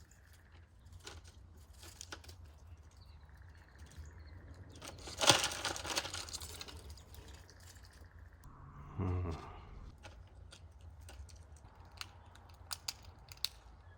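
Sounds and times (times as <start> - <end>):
faint clicks and scratches: 0.0 - 8.2.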